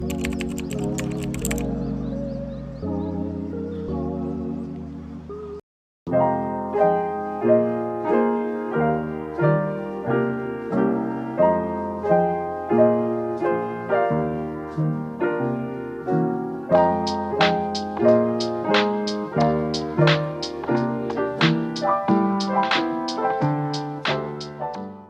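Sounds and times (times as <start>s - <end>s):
piano chords: 0.0s - 25.0s.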